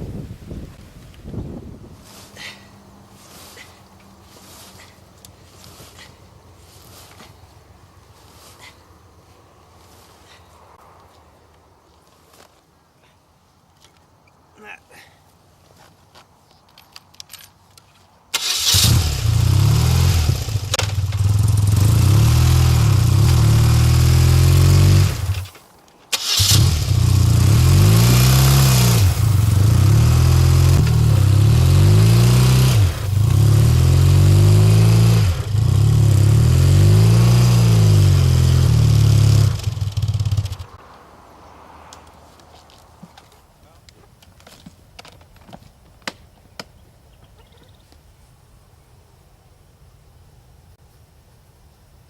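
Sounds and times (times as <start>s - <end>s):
motorcycle engine running: 18.7s - 25.5s, 26.4s - 40.8s.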